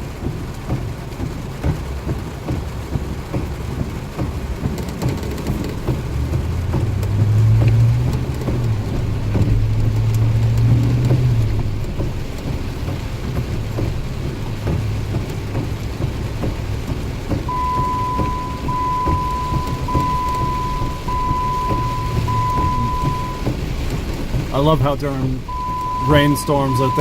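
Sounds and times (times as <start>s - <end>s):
heavy rain falling: 0.0s - 27.0s
vehicle engine running low: 0.0s - 27.0s
high-pitched beep: 17.5s - 23.5s, 25.5s - 27.0s.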